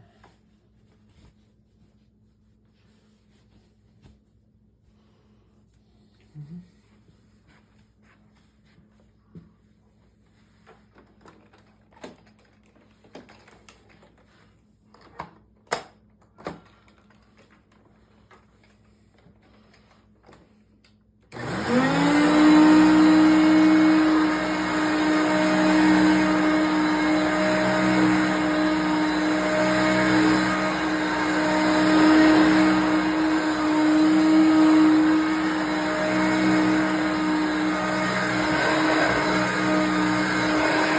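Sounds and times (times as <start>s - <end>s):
upright vacuum cleaner running: 21.3s - 40.9s.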